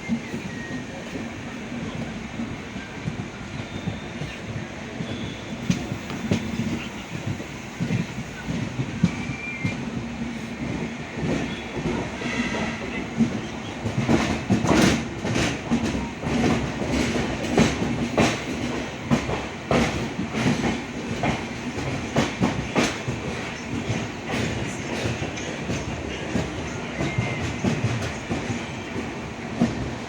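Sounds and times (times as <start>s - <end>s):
train rumble: 0.0s - 30.0s.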